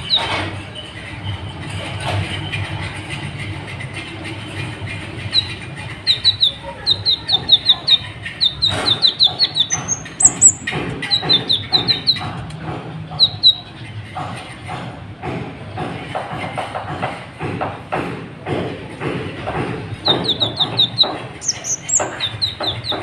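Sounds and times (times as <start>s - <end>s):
bird chirping: 0.0s - 1.5s, 5.0s - 12.3s, 13.1s - 13.8s, 20.0s - 23.0s.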